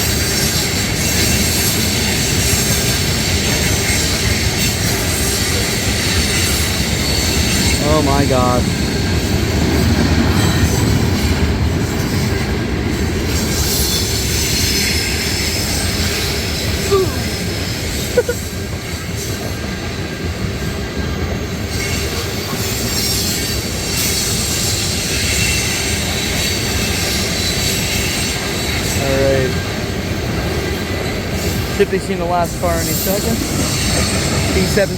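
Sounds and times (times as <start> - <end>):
freight train rolling past: 0.0 - 34.9
wheel squeaks: 31.1 - 34.9.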